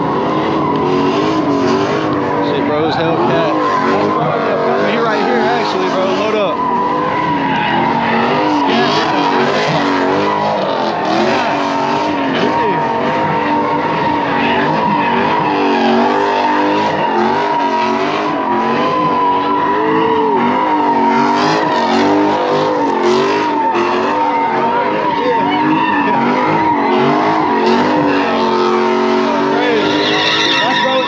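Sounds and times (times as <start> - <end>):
car engine revving: 0.0 - 31.0
tyres squealing: 0.0 - 31.0.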